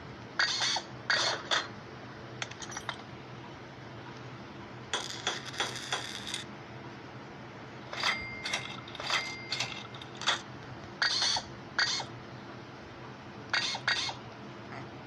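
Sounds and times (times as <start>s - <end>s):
metal parts clinking: 2.4s - 3.0s, 5.0s - 6.4s, 7.9s - 10.4s.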